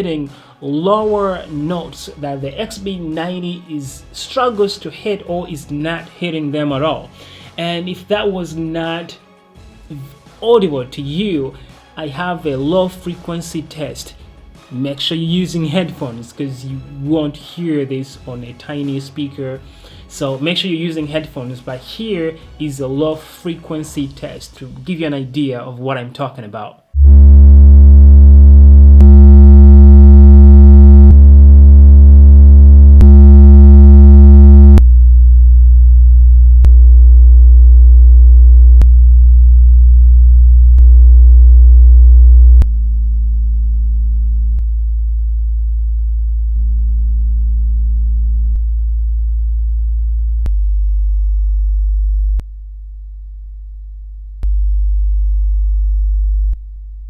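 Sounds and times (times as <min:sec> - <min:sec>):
low bass test tones from speakers: 0:27.0 - 0:57.0.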